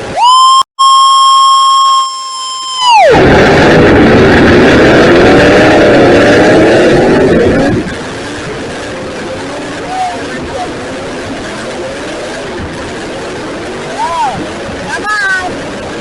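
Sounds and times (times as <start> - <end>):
high horn-like tone: 0.2 - 3.3
truck engine at high revs: 1.3 - 16.0.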